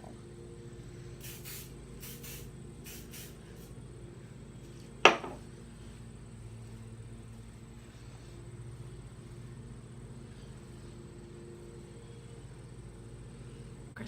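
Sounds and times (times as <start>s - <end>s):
hairspray hissing: 1.2s - 3.7s.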